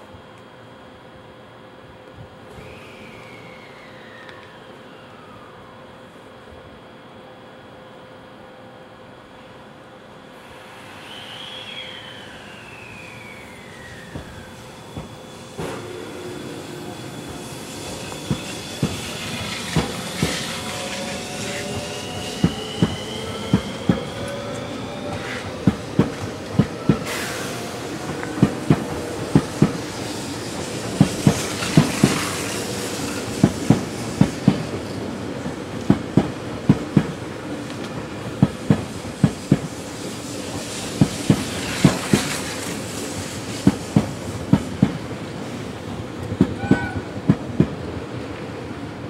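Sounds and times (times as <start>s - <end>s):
traction motor whine rising: 2.5s - 6.2s, 10.2s - 35.1s
train wheels clacking over joints: 17.3s - 21.1s.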